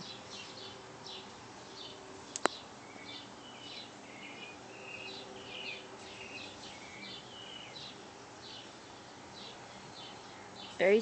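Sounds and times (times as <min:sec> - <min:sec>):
birds chirping: 0:00.0 - 0:11.0
faint outdoor hiss: 0:00.0 - 0:11.0
whistled bird notes: 0:02.8 - 0:08.7.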